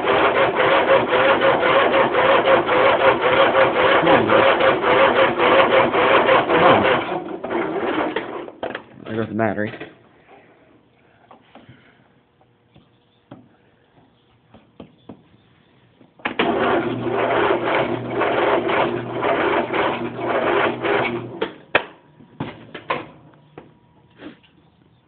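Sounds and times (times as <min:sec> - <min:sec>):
electric starter cranking engine: 0:00.0 - 0:08.6, 0:16.2 - 0:21.6.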